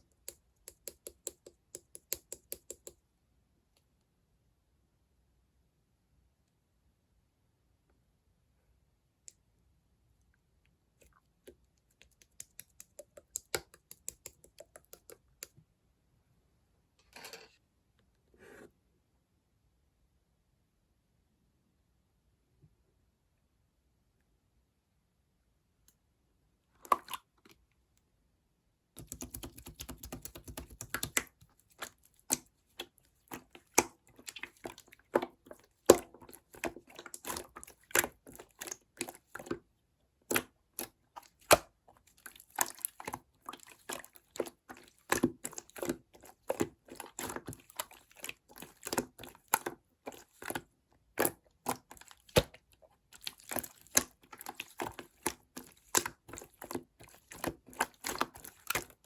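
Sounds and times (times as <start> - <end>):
slime squished by hand: 29.0 - 39.6, 40.3 - 59.0.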